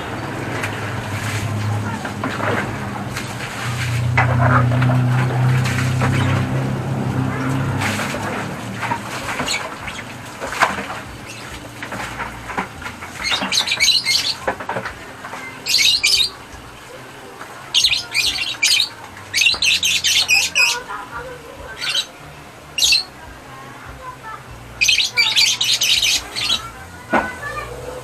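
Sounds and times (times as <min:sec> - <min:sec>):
low steady hum: 0:00.0 - 0:24.8
bird squawking and chirping: 0:09.2 - 0:12.0, 0:13.1 - 0:14.5, 0:15.5 - 0:16.4, 0:17.8 - 0:21.0, 0:21.6 - 0:22.2, 0:22.8 - 0:23.1, 0:24.8 - 0:26.8.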